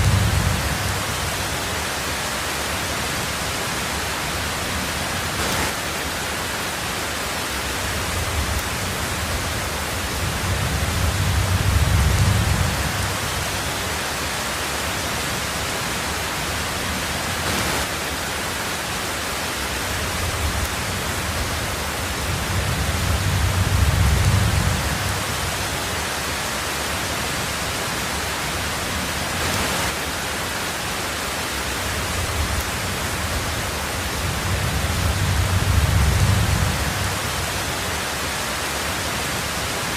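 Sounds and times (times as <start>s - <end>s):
distant thunder rumble: 0.0s - 1.6s, 8.0s - 13.8s, 20.1s - 25.6s, 31.9s - 37.7s
heavy rain on a tin roof: 0.0s - 39.9s.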